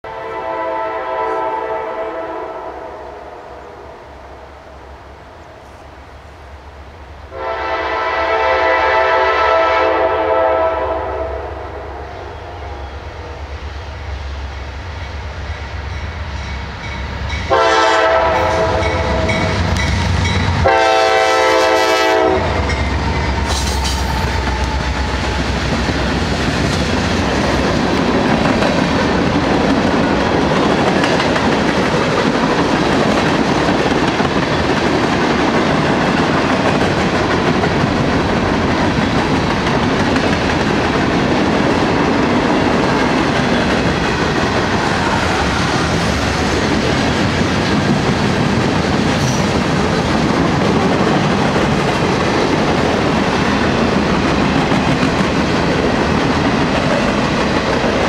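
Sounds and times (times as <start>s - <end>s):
train air horn blasts: 0.0s - 3.9s, 7.3s - 13.4s, 17.5s - 25.6s
locomotive engine rumble: 22.2s - 34.1s
clattering train wheels: 22.2s - 58.0s.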